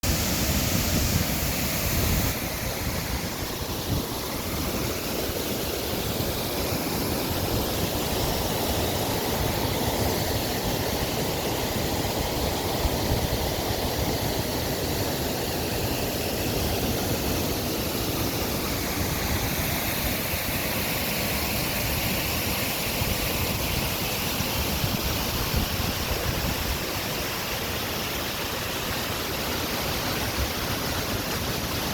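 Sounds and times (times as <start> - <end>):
waterfall roaring: 0.0 - 31.9
wind buffeting microphone: 23.0 - 27.2.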